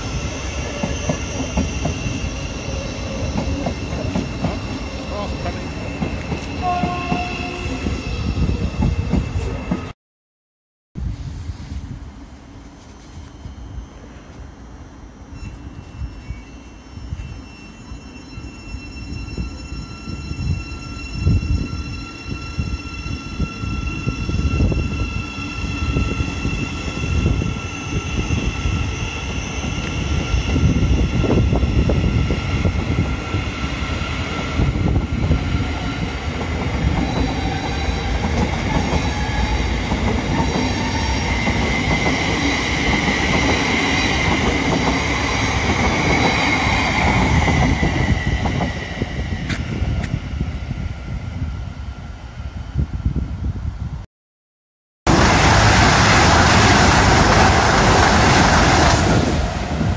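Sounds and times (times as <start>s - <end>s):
train wheels rumbling on rails: 0.0s - 10.0s, 19.1s - 51.7s, 55.1s - 59.9s.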